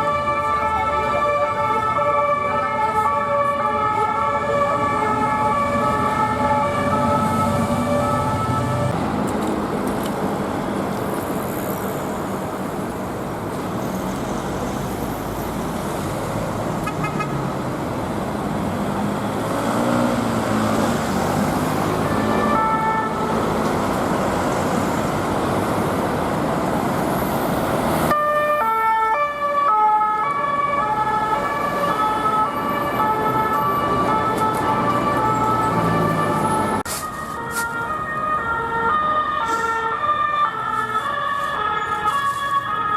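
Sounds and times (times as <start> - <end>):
two-tone police siren: 0.0 - 9.0, 19.4 - 23.7, 28.1 - 42.9
road traffic: 0.0 - 42.9.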